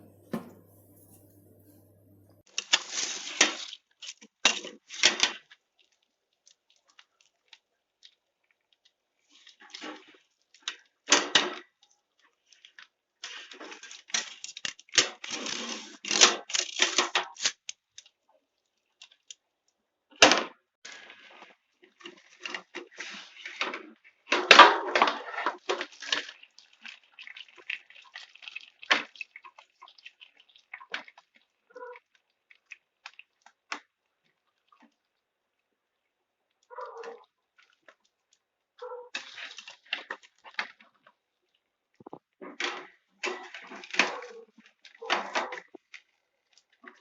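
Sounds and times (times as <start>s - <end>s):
crunchy bites of fried chicken: 25.2s - 35.2s.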